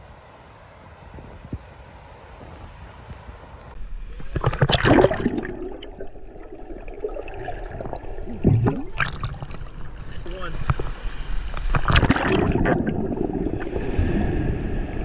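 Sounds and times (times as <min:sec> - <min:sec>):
wind noise on microphone: 0:00.0 - 0:04.3
water splashing and sloshing: 0:03.8 - 0:15.0.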